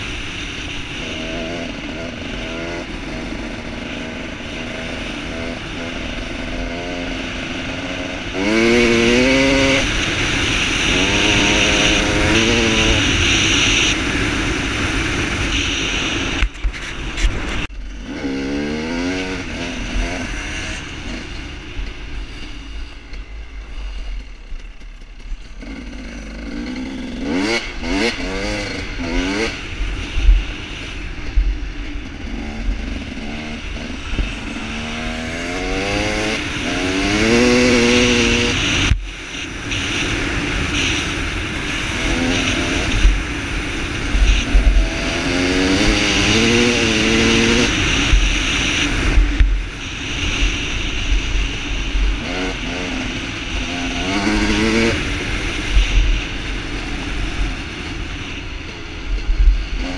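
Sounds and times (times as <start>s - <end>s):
dirt bike engine revving: 0.0s - 59.9s
wind on microphone: 27.2s - 59.9s.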